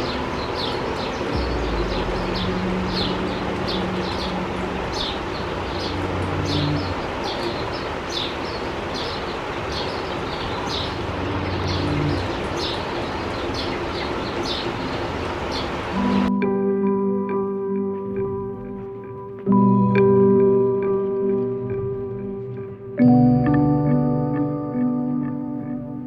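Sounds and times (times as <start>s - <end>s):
steady low hum: 0.0s - 8.1s, 10.2s - 16.3s.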